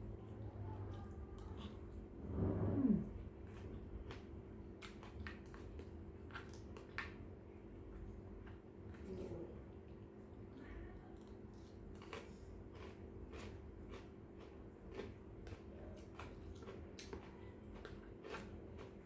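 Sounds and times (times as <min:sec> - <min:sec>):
low steady hum: 0:00.0 - 0:04.6
clicks and taps of eating: 0:03.6 - 0:09.1, 0:11.2 - 0:19.0.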